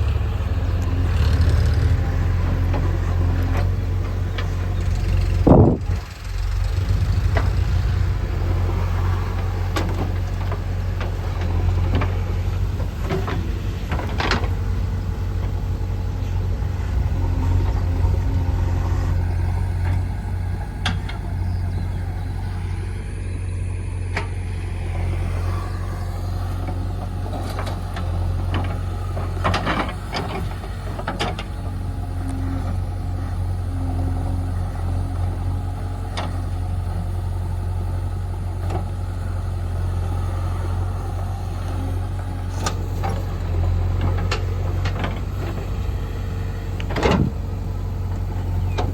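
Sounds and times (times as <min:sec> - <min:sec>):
diesel engine rumbling: 0:00.0 - 0:48.9.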